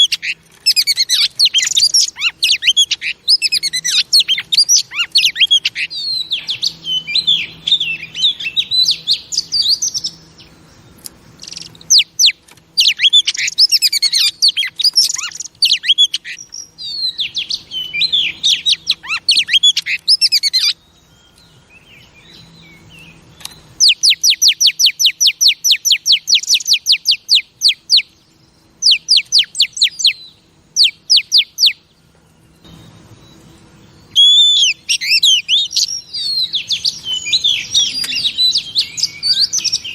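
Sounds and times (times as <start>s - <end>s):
bird singing warbled phrases: 0.0s - 39.9s
repeated down-slurred bird notes: 0.0s - 39.9s.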